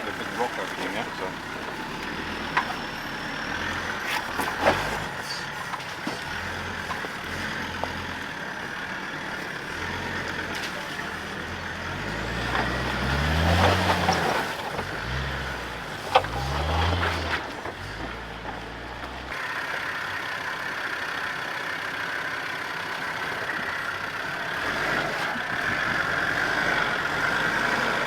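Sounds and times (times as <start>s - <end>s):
vehicle knocks and clunks: 0.0s - 3.0s, 3.7s - 8.3s, 10.3s - 19.4s
truck engine revving: 0.0s - 28.0s.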